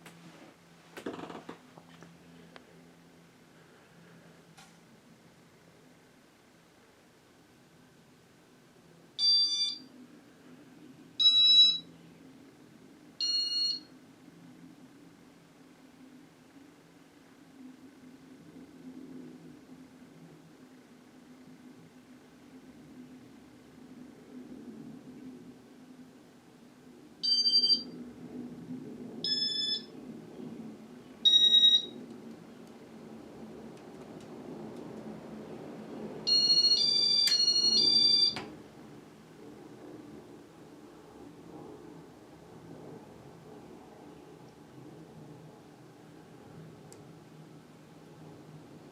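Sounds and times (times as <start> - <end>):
faint low hum: 0.0 - 48.9
electronic beeps: 11.2 - 11.8, 29.3 - 29.9, 31.3 - 32.0, 36.3 - 38.4.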